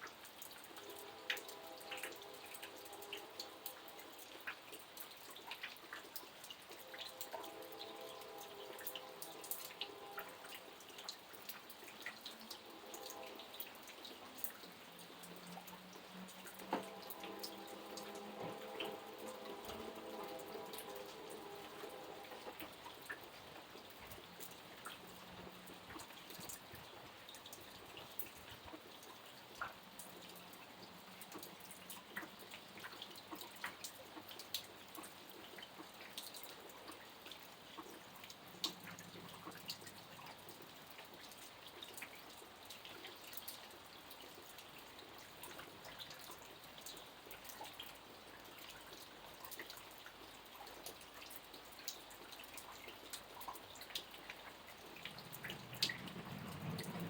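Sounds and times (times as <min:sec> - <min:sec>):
light rain hiss: 0:00.0 - 0:57.0
drops and drips landing: 0:50.8 - 0:57.0.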